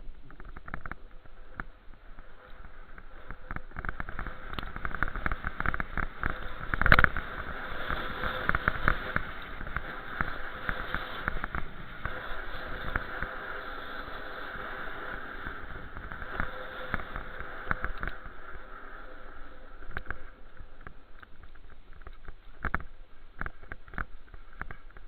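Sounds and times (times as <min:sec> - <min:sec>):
small clicks and rattles: 0:00.0 - 0:25.0
rushing noise: 0:02.0 - 0:21.1.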